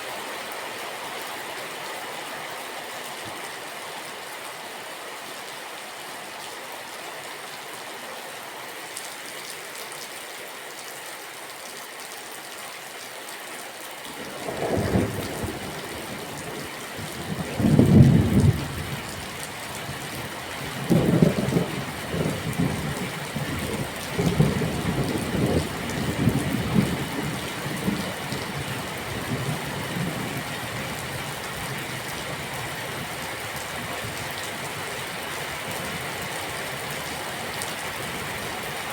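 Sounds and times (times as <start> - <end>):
rain hiss: 12.7 - 38.9
thunder rumbling: 14.2 - 19.2.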